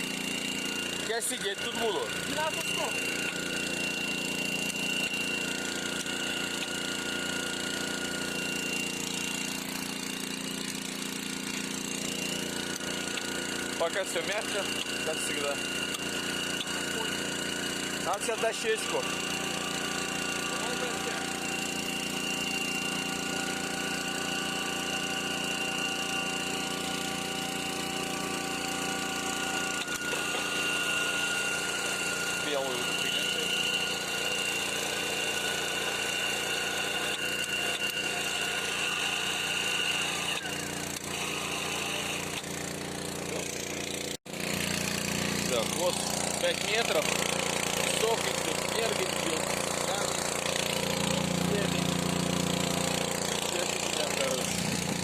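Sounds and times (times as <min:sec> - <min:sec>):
drilling rig engine drone: 0:00.0 - 0:55.0.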